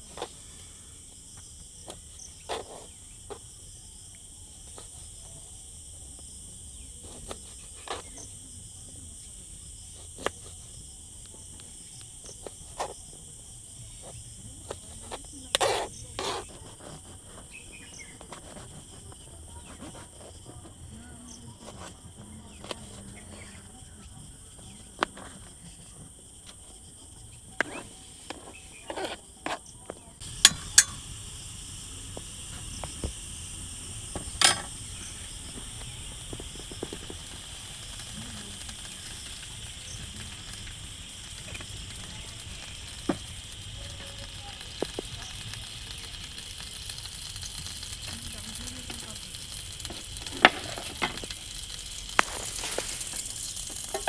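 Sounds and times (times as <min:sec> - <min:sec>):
loud hiss: 0:00.0 - 0:08.2, 0:27.2 - 0:29.0, 0:30.2 - 0:54.0
crickets trilling: 0:00.0 - 0:54.0.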